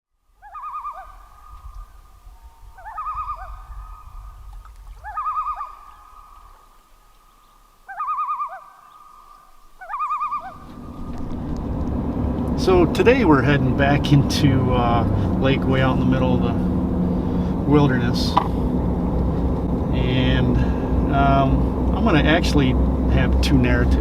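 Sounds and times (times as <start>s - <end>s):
loon tremolo call: 0.4s - 4.4s, 5.0s - 12.2s
low rumble: 1.0s - 7.8s, 9.8s - 24.0s.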